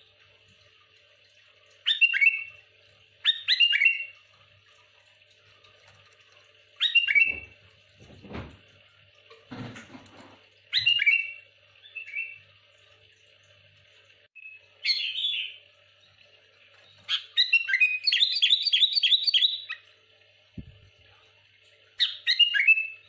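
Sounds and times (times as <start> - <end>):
bird singing: 1.9 - 2.5, 3.2 - 4.1, 6.8 - 7.5, 10.7 - 12.4, 14.4 - 15.6, 16.8 - 19.8, 22.0 - 23.0
soft thump: 20.6 - 20.9.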